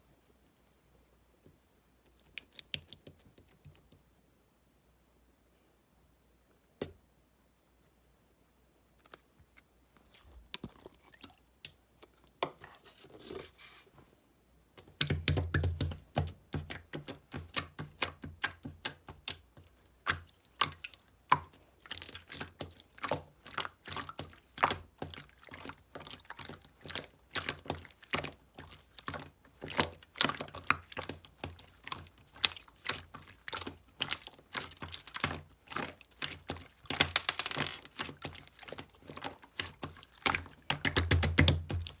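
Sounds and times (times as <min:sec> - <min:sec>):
slime clicking and popping: 0:02.2 - 0:03.3, 0:39.5 - 0:42.0.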